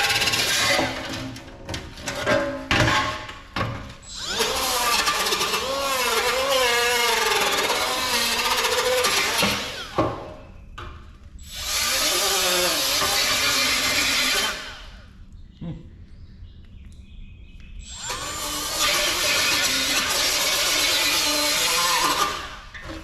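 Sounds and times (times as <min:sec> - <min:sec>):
handheld power tool running: 0:00.0 - 0:01.1, 0:04.0 - 0:10.1, 0:11.5 - 0:15.0, 0:17.8 - 0:23.0.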